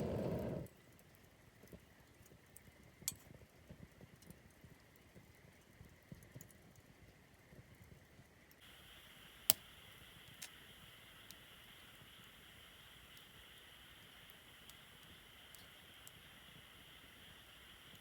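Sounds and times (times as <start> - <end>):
campfire crackling: 0.0 - 1.7, 8.6 - 18.0
faint steady hiss: 0.0 - 18.0.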